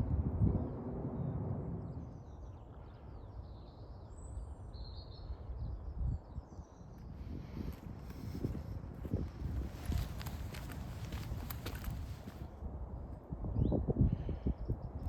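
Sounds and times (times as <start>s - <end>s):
wind buffeting microphone: 0.0s - 15.0s
small birds chirping: 9.2s - 12.5s.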